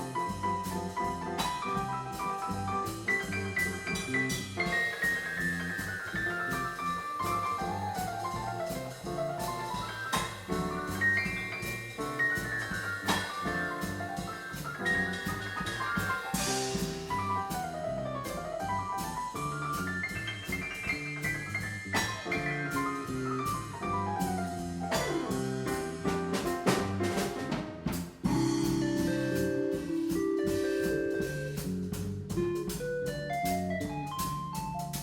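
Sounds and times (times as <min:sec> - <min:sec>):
drums and cymbals: 0:00.0 - 0:35.0
walking bass line: 0:00.0 - 0:35.0
quick melodic runs: 0:02.4 - 0:18.1, 0:28.3 - 0:35.0.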